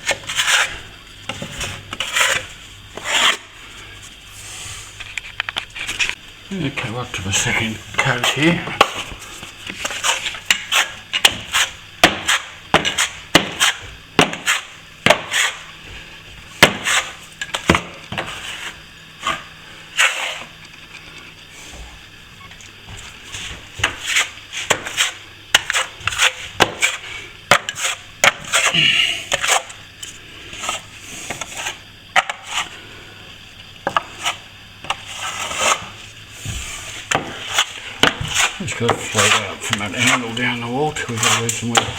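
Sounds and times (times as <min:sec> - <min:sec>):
plastering trowel scraping and clacking: 0:00.0 - 0:03.5, 0:09.7 - 0:15.6, 0:16.6 - 0:19.4, 0:23.4 - 0:28.7, 0:29.3 - 0:29.8, 0:33.9 - 0:36.0, 0:36.6 - 0:41.9.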